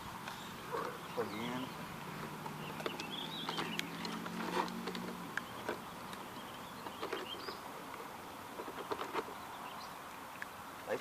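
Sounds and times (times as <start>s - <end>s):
small clicks and knocks: 2.2s - 8.0s.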